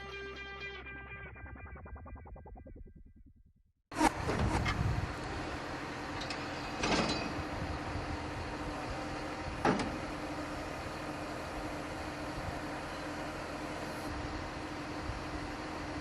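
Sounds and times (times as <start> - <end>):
farm machinery humming: 4.0 - 16.0
machinery clunks: 6.2 - 7.4, 9.6 - 10.1.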